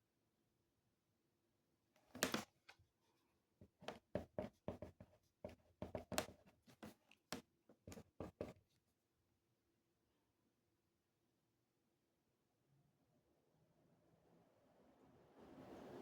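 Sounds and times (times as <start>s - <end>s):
pen writing on paper: 3.8s - 7.0s, 7.9s - 8.6s.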